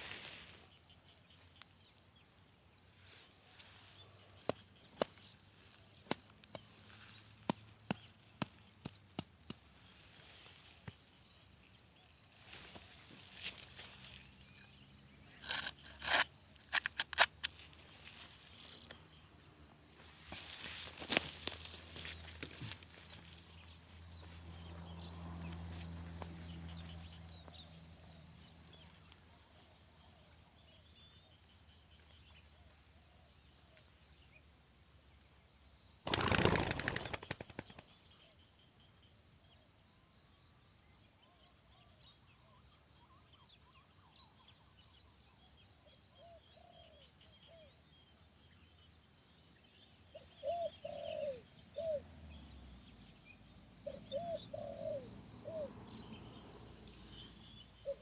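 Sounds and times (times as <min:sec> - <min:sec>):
small birds chirping: 0:00.0 - 0:39.6, 0:41.2 - 0:58.0
high insect whine: 0:00.0 - 0:41.4, 0:43.1 - 0:58.0
wings flapping: 0:36.0 - 0:37.9
doves cooing: 0:50.4 - 0:52.0, 0:53.9 - 0:55.8.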